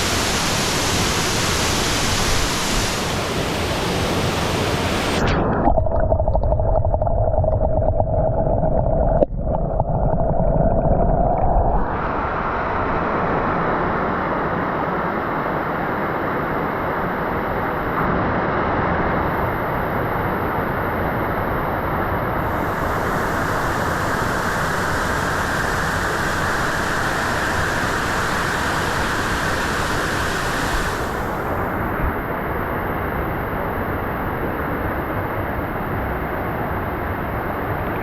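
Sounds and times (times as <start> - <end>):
rush of falling water: 0.0 - 5.3, 22.4 - 31.7
low hum: 5.2 - 13.6.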